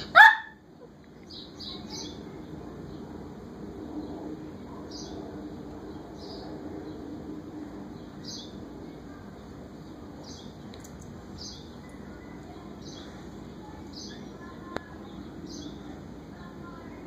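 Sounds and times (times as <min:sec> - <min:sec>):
steady low hum: 0:00.0 - 0:17.0
small bird chirping: 0:09.8 - 0:15.9.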